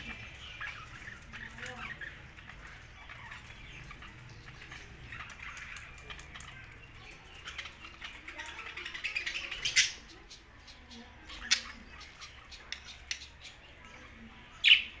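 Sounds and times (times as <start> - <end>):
budgerigars chattering and warbling: 0.0 - 15.0.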